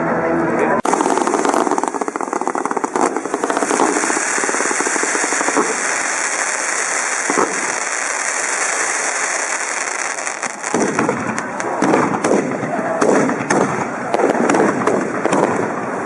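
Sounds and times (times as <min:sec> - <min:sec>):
hissing spray of sparks: 0:00.8 - 0:11.0
fireworks crackling: 0:00.8 - 0:16.0.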